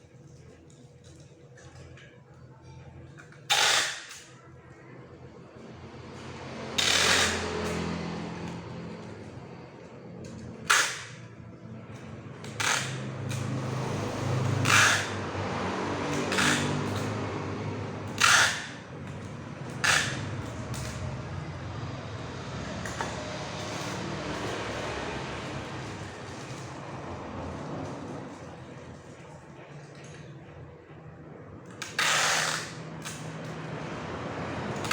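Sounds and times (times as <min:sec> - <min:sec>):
steady motor hum: 0:04.6 - 0:34.9.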